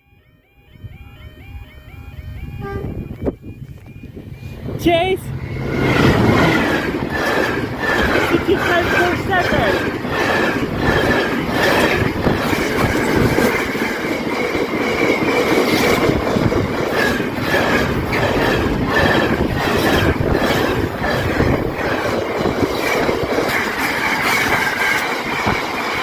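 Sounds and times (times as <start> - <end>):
high wheel squeal: 4.1 - 13.8, 16.9 - 22.2
train wheels clacking over rail joints: 5.6 - 26.0.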